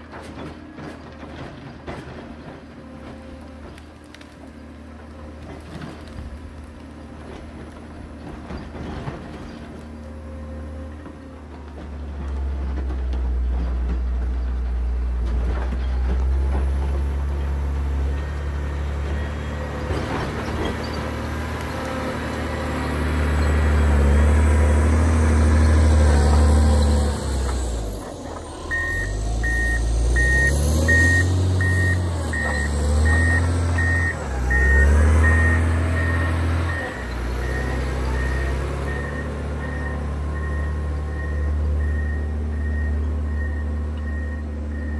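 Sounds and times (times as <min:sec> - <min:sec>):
diesel engine under load: 0:00.0 - 0:44.9
reversing alarm beeping: 0:28.6 - 0:44.9.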